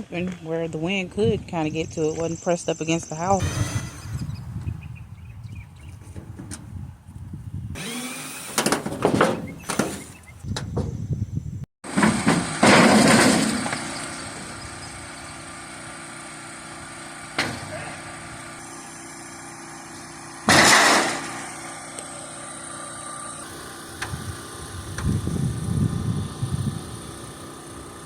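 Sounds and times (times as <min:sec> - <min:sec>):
small engine running: 0:03.3 - 0:06.3, 0:07.7 - 0:08.9, 0:13.7 - 0:28.0
loud noisy bursts: 0:03.4 - 0:04.6, 0:07.8 - 0:08.9, 0:23.3 - 0:28.0.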